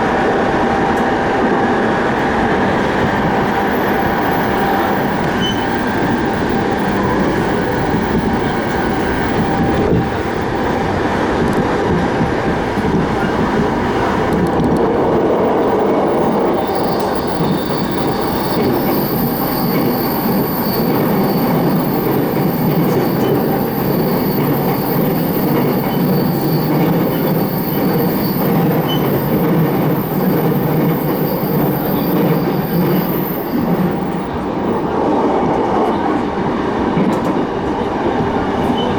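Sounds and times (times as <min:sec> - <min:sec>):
train wheels rumbling: 0:00.0 - 0:38.9
thin high squeal: 0:03.1 - 0:10.4, 0:15.6 - 0:34.4.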